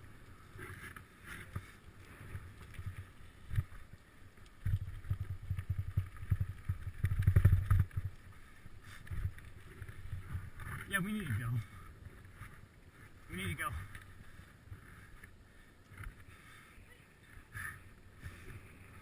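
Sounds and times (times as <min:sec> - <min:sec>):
wind rumbling on microphone: 0:02.4 - 0:15.2
bicycle rattles and clicks: 0:04.6 - 0:10.9.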